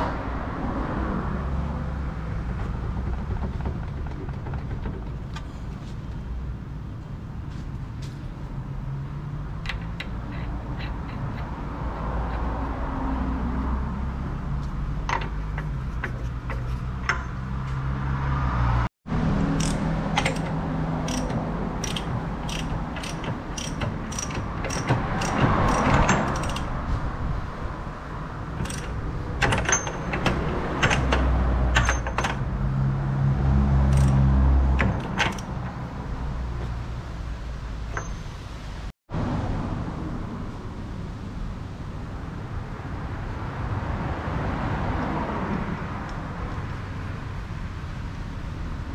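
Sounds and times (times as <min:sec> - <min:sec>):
metal tools clinking and clanking: 0:19.6 - 0:26.8, 0:28.6 - 0:32.4, 0:33.9 - 0:35.8, 0:37.9 - 0:38.3.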